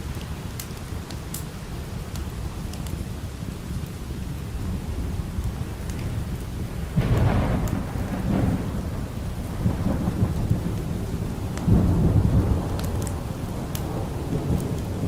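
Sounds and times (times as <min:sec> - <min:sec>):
log fire crackling: 0:00.0 - 0:15.0
steady rain: 0:00.0 - 0:15.0
thunder rumbling: 0:03.4 - 0:15.0.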